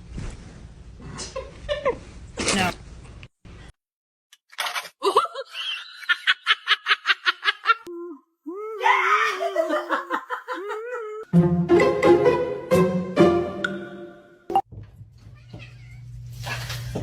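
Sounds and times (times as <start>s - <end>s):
person laughing hard: 9.0s - 11.3s.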